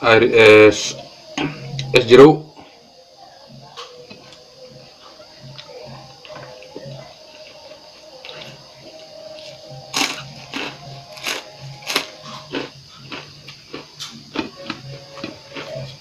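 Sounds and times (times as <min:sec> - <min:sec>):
eating clicks and crunches: 0:09.4 - 0:16.0.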